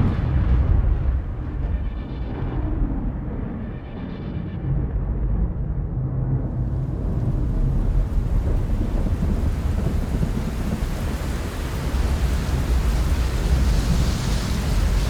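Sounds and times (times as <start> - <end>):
low thunder rumble: 0.0 - 4.0, 4.6 - 15.0
rain hiss: 6.6 - 15.0.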